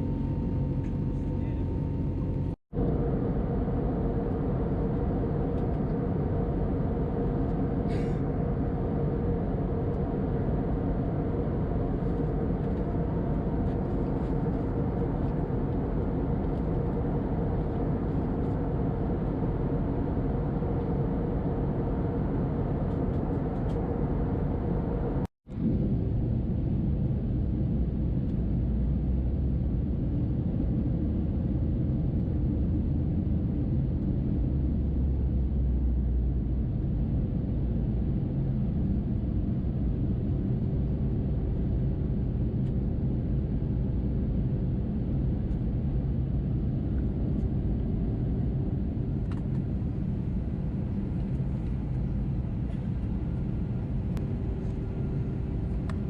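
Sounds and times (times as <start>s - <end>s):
airplane cabin rumble: 0.0s - 56.0s
faint steady hum: 26.7s - 56.0s.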